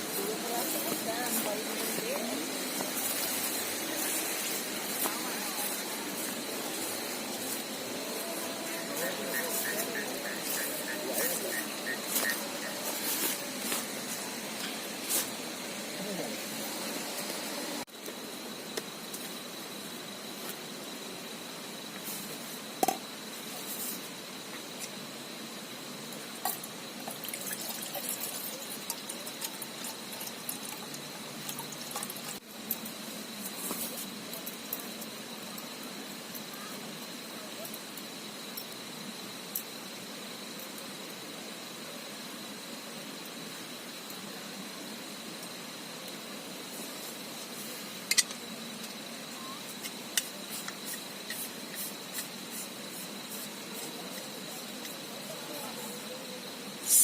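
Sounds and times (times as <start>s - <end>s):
thin high tone: 0.0s - 15.4s
steady hiss: 0.0s - 57.0s.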